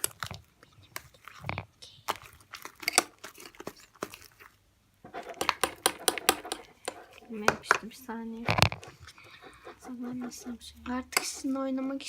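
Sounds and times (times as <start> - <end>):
slime squished crackling and popping: 0.0 - 4.6.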